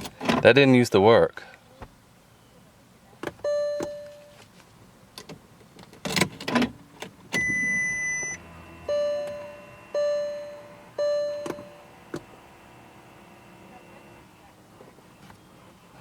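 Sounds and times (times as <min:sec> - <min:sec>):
high beep: 0:03.4 - 0:04.3, 0:07.4 - 0:11.7
dashboard warning chimes: 0:03.4 - 0:04.4, 0:07.3 - 0:11.9.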